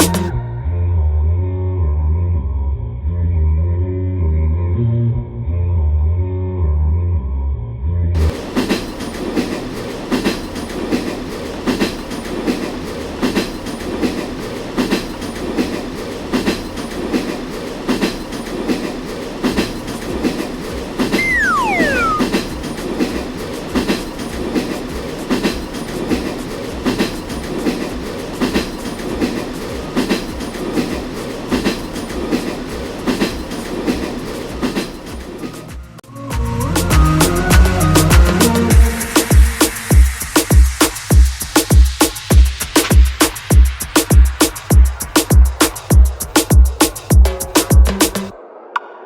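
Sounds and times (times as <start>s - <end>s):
train wheels clickety-clack: 0.0s - 0.3s, 8.2s - 36.0s, 36.8s - 48.4s
falling whistle-like tone: 21.2s - 22.4s.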